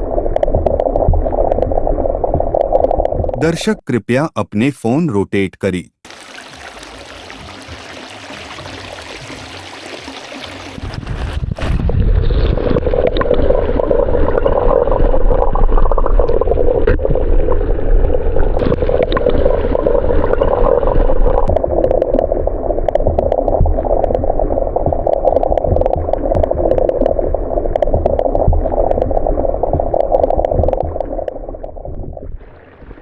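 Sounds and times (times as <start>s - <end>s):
stream water flowing: 6.0s - 10.9s.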